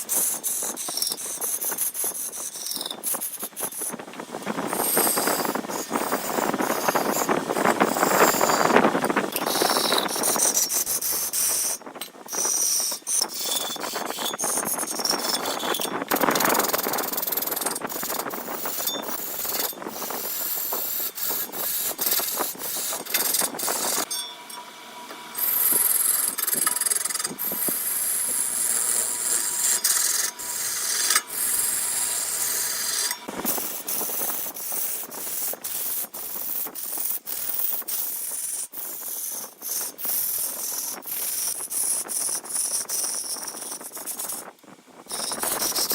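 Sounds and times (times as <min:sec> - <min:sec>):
tool scraping wood on lathe: 0:00.0 - 0:24.2, 0:25.3 - 0:44.5, 0:45.1 - 0:45.9
lathe humming: 0:04.2 - 0:11.8, 0:14.8 - 0:36.0.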